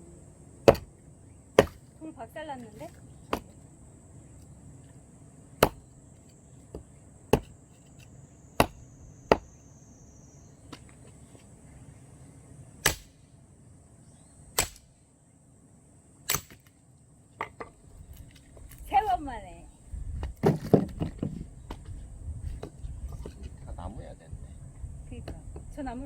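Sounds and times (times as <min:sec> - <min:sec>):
axe chopping log: 0:00.6 - 0:00.9, 0:01.6 - 0:01.9, 0:03.3 - 0:03.6, 0:05.6 - 0:05.8, 0:06.7 - 0:07.6, 0:08.6 - 0:09.5, 0:12.8 - 0:13.2, 0:14.6 - 0:14.9.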